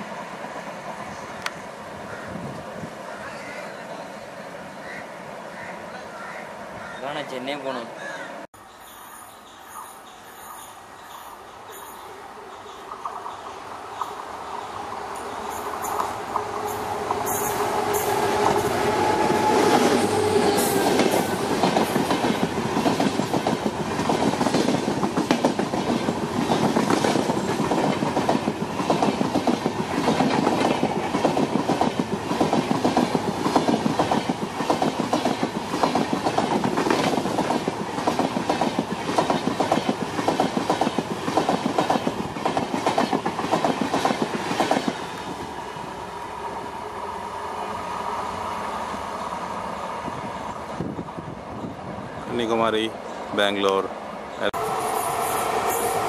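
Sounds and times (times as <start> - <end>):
receding train rumble: 0.0 - 6.8, 8.3 - 56.0
locomotive whine: 13.8 - 22.8, 45.0 - 52.2, 54.0 - 56.0.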